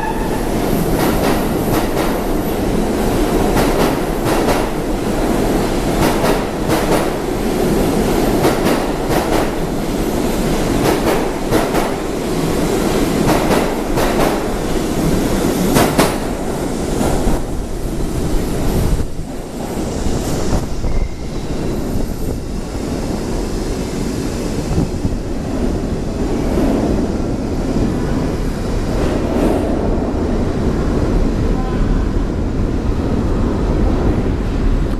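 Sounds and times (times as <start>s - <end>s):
subway train rumble: 0.0s - 34.9s.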